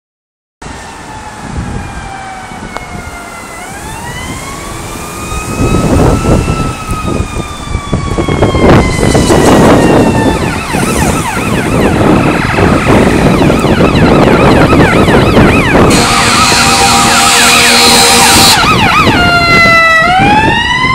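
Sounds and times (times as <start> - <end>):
fire engine siren wailing: 0.6 - 20.9
truck rumble: 0.6 - 20.9
loud horn blare: 8.7 - 20.3.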